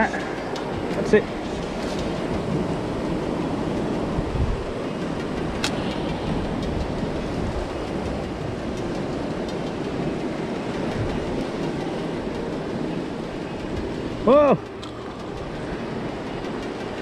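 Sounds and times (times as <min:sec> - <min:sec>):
surf on rocky shore: 0:00.0 - 0:17.0
wind on microphone: 0:00.0 - 0:17.0.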